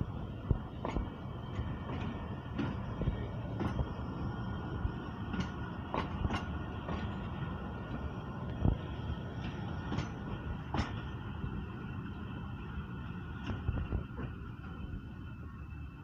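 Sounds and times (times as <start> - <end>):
train rumble: 0.0 - 16.0
wheels clicking over rail joints: 0.5 - 11.2.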